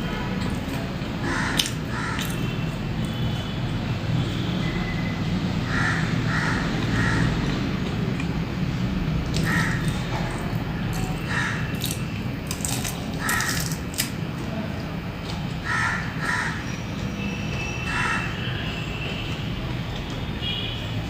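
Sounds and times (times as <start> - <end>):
crunching of fried snacks: 0.4 - 3.1, 9.2 - 14.9.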